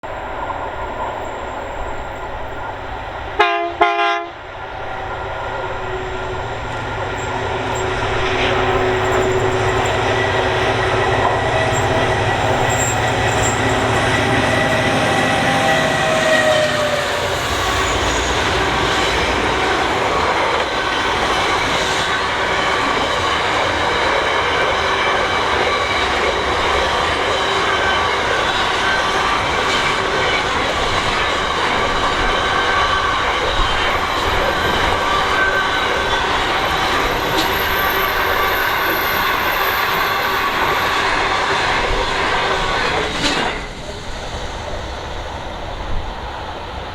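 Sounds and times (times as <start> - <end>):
diesel locomotive engines passing: 0.0 - 46.9
train horn blasts: 3.4 - 4.4
wagons rumbling and clattering on rails: 4.5 - 46.9.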